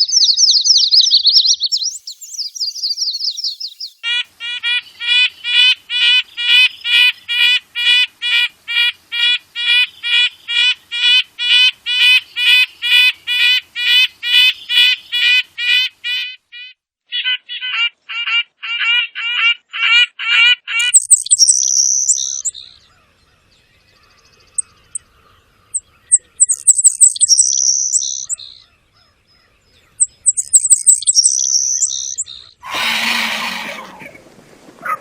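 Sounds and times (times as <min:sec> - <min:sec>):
repeated whistled bird notes: 0:00.0 - 0:04.1, 0:20.8 - 0:22.8, 0:26.1 - 0:28.6, 0:30.0 - 0:33.9
bird song with buzzy note: 0:20.8 - 0:34.0
harsh bird call: 0:30.0 - 0:34.2.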